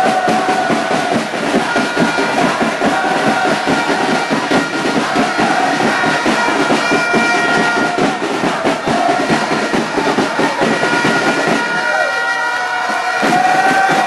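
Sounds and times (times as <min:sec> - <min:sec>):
fast drumbeat: 0:00.0 - 0:12.1, 0:12.7 - 0:14.0
horns holding notes: 0:00.0 - 0:14.0.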